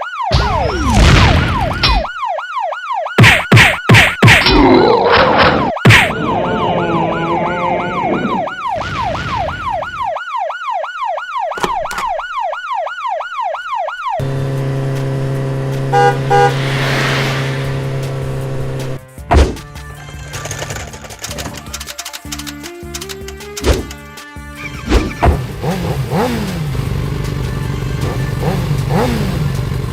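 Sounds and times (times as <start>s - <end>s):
emergency siren sweeping: 0.0s - 3.2s, 5.3s - 19.0s
steady low drone: 14.3s - 19.0s.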